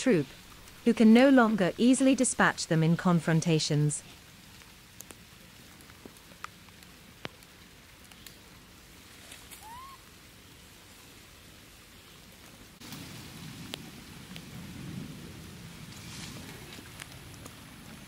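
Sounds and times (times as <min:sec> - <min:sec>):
light rain: 0:00.0 - 0:18.0
drip-like ticks: 0:04.4 - 0:08.4.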